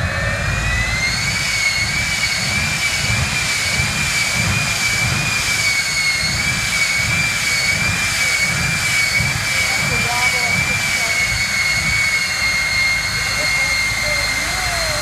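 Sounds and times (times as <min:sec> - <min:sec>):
jet engine whine: 0:00.0 - 0:15.0.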